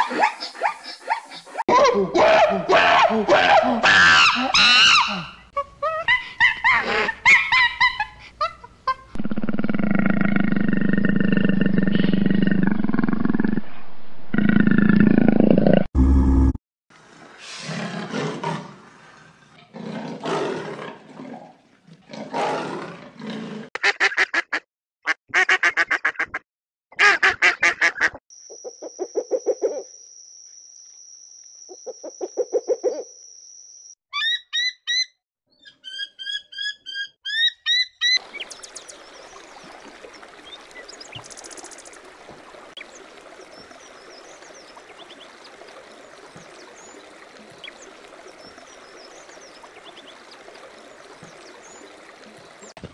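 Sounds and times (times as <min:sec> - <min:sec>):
running water: 0:38.2 - 0:52.9.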